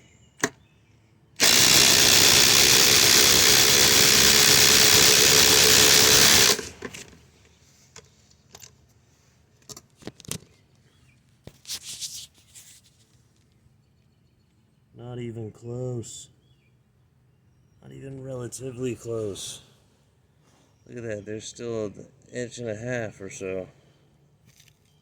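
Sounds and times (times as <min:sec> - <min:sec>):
impact driver rattling: 0:01.4 - 0:07.2.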